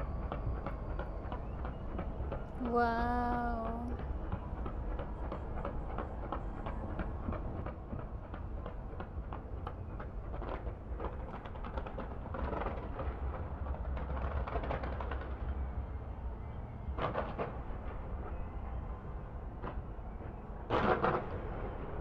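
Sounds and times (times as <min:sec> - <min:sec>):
fireworks bangs and crackles: 0:07.6 - 0:15.6.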